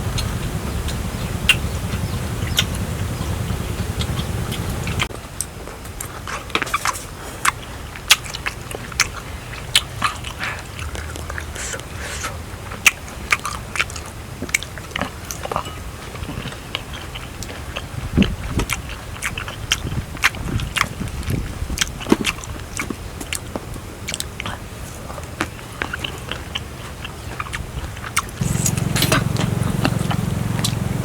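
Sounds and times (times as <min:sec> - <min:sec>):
wet chewing and biting: 0:12.8 - 0:30.8.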